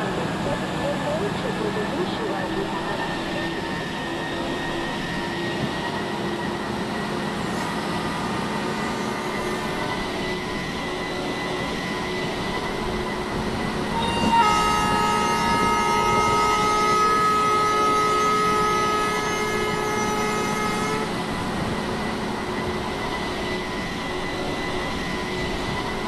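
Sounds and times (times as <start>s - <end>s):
train rolling past: 0.0s - 26.0s
train horn held tones: 13.9s - 21.4s.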